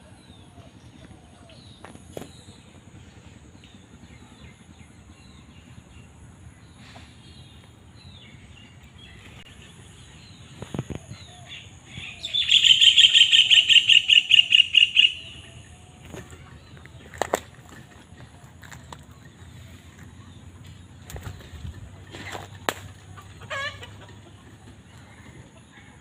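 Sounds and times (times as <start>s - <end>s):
birds chirping: 0.3s - 26.0s
bird calling repeated notes: 12.0s - 15.7s.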